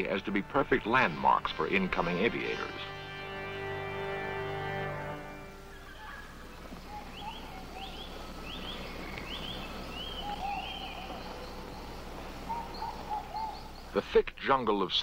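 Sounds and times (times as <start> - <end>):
steady hiss and hum: 0.0 - 15.0
low arching bird calls: 1.9 - 14.0
bird chirps: 5.6 - 14.0.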